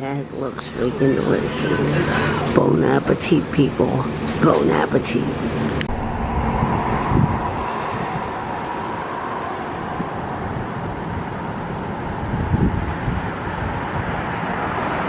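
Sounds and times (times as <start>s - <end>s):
road traffic: 5.4s - 15.0s
wind rumble on microphone: 5.6s - 15.0s.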